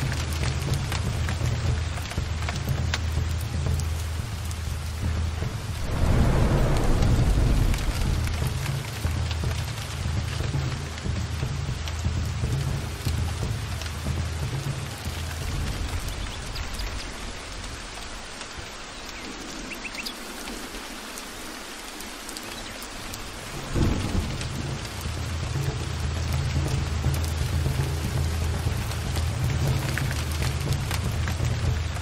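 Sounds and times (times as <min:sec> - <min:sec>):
heavy rain: 0:00.0 - 0:32.0
low thunder rumbling: 0:03.1 - 0:20.7, 0:23.2 - 0:32.0
loud thunderclap: 0:05.4 - 0:10.5, 0:23.6 - 0:26.0.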